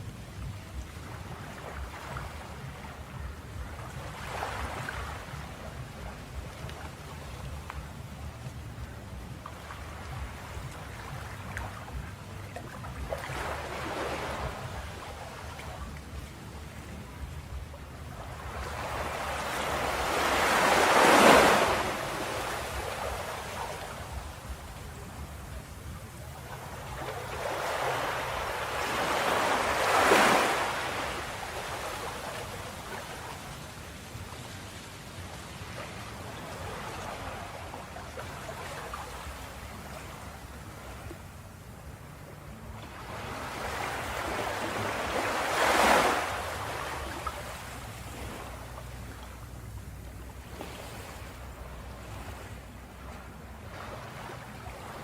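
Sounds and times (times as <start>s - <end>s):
low surf rumble: 0.0s - 45.5s
ocean wave breaking on beach: 18.2s - 40.1s, 43.0s - 49.2s.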